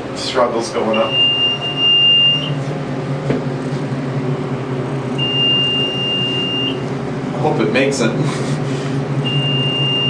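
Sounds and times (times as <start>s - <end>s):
elevator pump and motor hum: 0.0s - 10.0s
long high beep: 0.9s - 2.6s, 5.2s - 6.8s, 9.2s - 10.0s.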